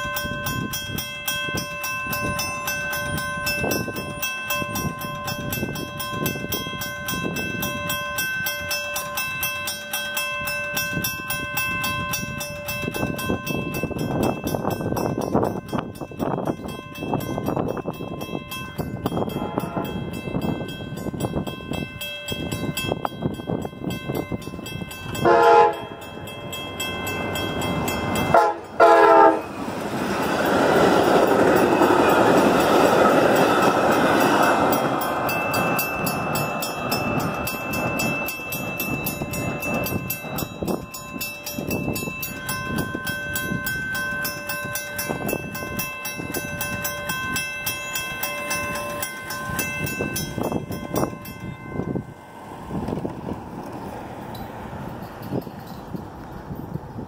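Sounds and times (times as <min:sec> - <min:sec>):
clatter of passing rail cars: 0:00.0 - 0:57.0
crossing bells ringing: 0:00.0 - 0:57.0
train passing loudly: 0:00.0 - 0:57.0
train horn blasts: 0:19.3 - 0:20.2, 0:25.2 - 0:26.0, 0:28.3 - 0:29.6.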